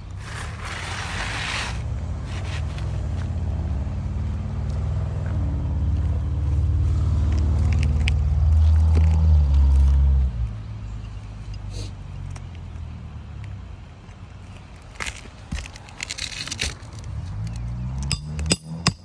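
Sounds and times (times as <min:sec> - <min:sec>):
vehicle engine rumble: 0:00.0 - 0:19.0
brief scraping noise: 0:00.2 - 0:03.2.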